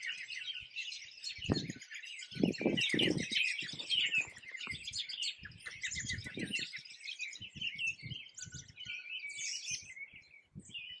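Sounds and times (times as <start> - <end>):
songbirds chirping and trilling: 0.0 - 11.0.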